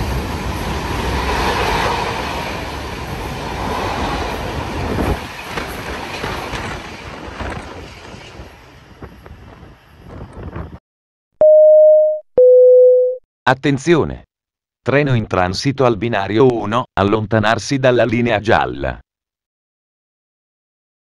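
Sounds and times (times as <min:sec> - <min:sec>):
freight train rumble and clatter: 0:00.0 - 0:10.8
electronic chime tone: 0:11.4 - 0:13.2.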